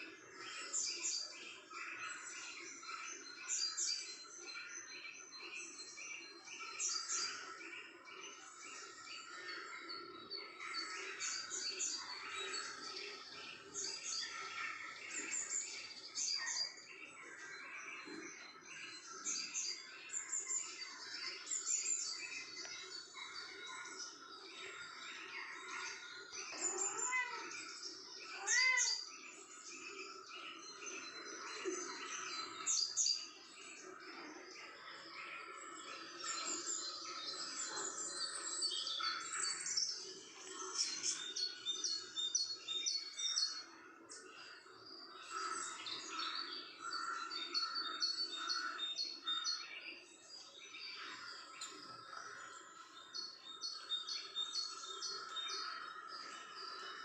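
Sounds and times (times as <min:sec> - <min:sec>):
small birds chirping: 0:00.0 - 0:57.0
rising falling bird calls: 0:26.5 - 0:27.6, 0:28.2 - 0:29.0.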